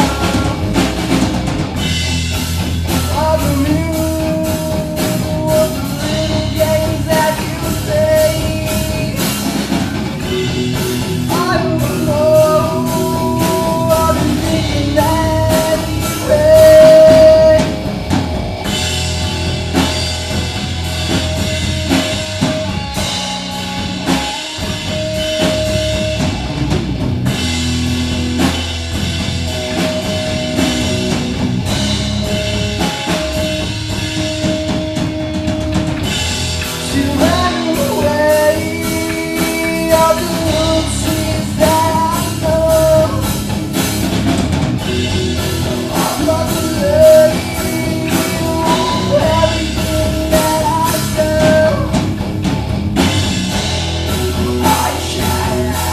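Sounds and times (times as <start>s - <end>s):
person singing: 0.0s - 1.3s, 2.9s - 18.2s, 36.6s - 43.5s, 44.8s - 52.2s, 54.1s - 55.9s
bass guitar: 0.0s - 55.9s
drum kit: 0.0s - 55.9s
electric guitar: 0.0s - 55.9s.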